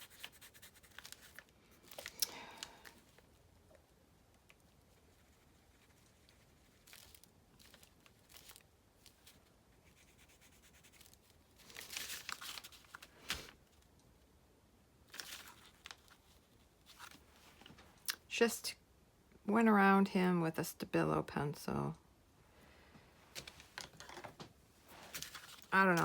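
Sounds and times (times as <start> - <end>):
paper rustling and scratching: 0.0 - 2.2, 5.1 - 13.6, 15.1 - 17.7, 24.9 - 26.0.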